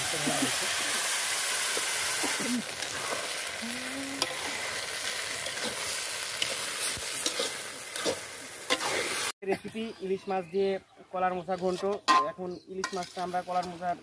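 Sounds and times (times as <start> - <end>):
food sizzling in hot oil: 0.0 - 9.4
metal spatula scraping pan: 11.6 - 13.8.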